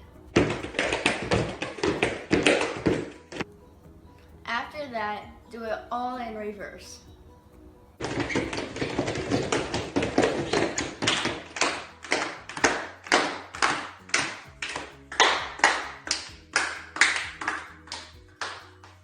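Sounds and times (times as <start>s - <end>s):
hand clapping: 0.4s - 3.4s, 8.0s - 19.0s.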